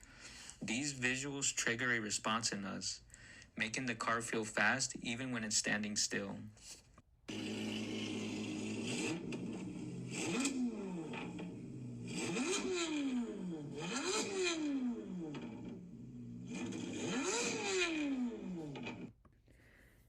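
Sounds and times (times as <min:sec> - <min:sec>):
car engine revving: 0:07.3 - 0:19.1.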